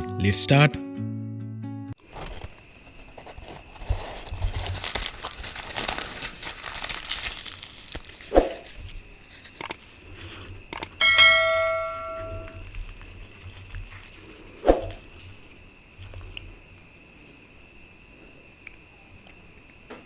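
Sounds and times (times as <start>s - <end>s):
fried bread crackling as torn: 2.1s - 9.9s, 12.4s - 16.4s
metal tableware ringing: 11.0s - 12.6s.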